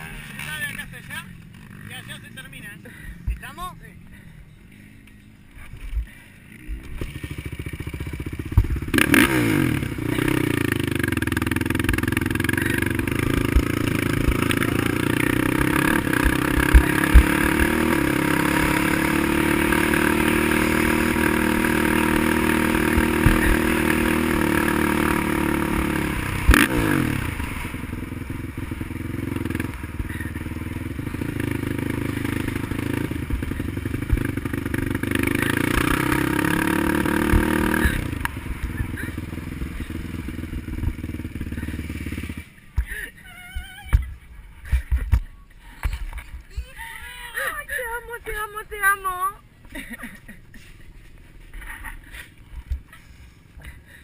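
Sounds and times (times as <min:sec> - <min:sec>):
quad engine running hard: 0:06.1 - 0:44.0.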